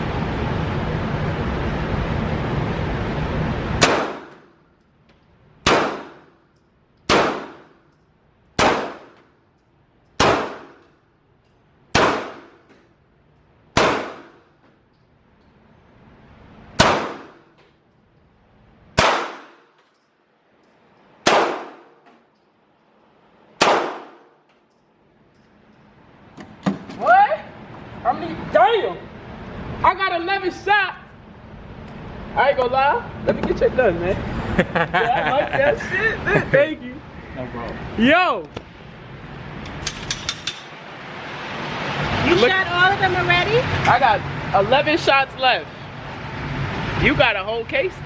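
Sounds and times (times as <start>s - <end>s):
pistol shots echoing: 3.8s - 4.4s, 5.6s - 6.4s, 7.1s - 7.8s, 8.6s - 9.2s, 10.2s - 10.8s, 11.9s - 12.7s, 13.8s - 14.4s, 16.8s - 17.4s, 19.0s - 19.7s, 21.2s - 22.0s, 23.6s - 24.3s.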